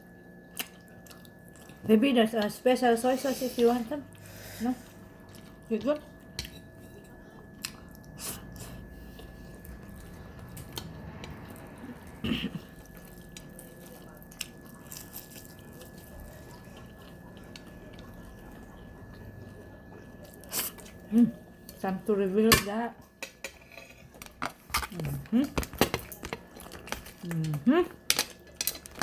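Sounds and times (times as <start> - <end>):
person chewing food: 0.5 - 1.8, 4.1 - 21.8, 25.5 - 27.4.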